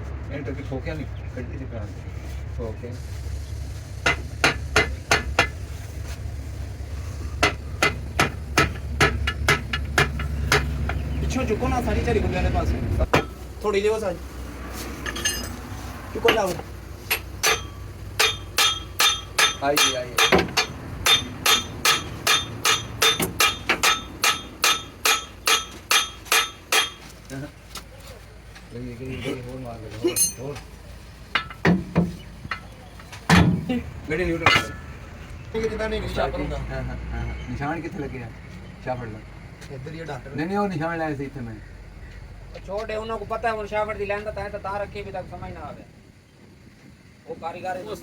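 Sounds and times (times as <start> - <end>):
hammer striking metal: 17.1 - 27.0, 34.4 - 34.9.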